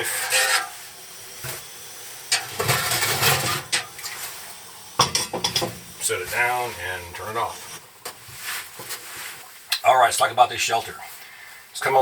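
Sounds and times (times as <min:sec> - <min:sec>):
camp stove burner hissing: 0:00.0 - 0:09.5
metal cookware clattering: 0:02.3 - 0:03.9, 0:05.0 - 0:05.9.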